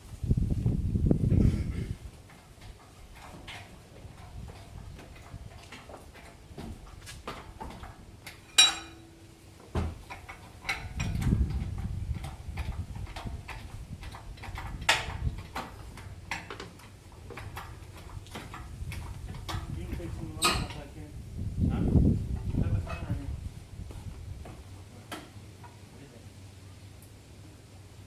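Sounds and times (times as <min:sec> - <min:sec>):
low rumble of handling: 0:00.0 - 0:28.0
metal tools clinking and knocking: 0:08.2 - 0:09.2, 0:19.4 - 0:20.9
loud ringing metal clank: 0:08.4 - 0:09.2.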